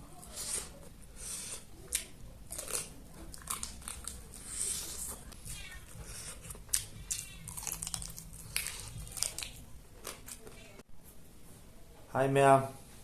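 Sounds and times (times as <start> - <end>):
chewing and crunching: 0.2 - 10.8.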